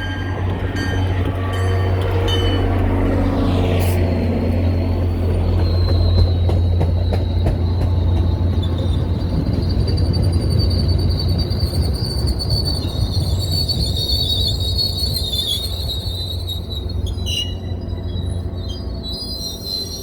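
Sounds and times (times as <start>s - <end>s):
train passing with low rumble: 0.0s - 20.0s
high wheel squeal: 5.0s - 20.0s.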